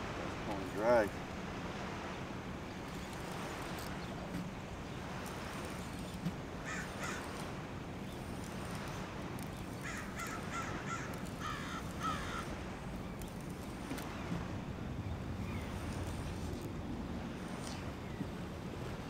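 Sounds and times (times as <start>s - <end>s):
bird cawing: 6.6s - 7.4s, 9.8s - 12.5s.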